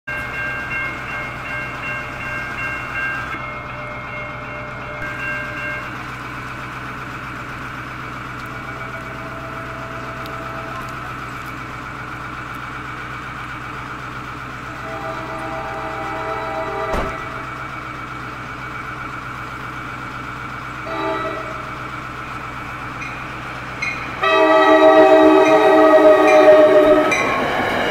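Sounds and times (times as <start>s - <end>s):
train rumbling past: 0.1s - 27.9s
train horn: 14.7s - 17.5s, 20.8s - 21.7s, 24.2s - 27.3s.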